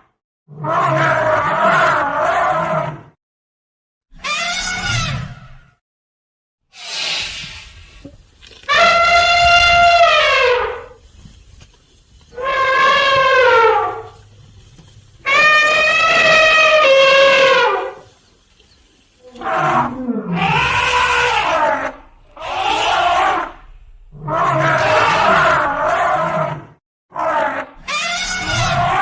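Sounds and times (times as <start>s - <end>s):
elephant trumpeting: 4.2s - 5.4s, 6.8s - 11.0s, 12.3s - 14.6s, 15.2s - 18.2s, 19.2s - 26.4s, 27.2s - 29.0s.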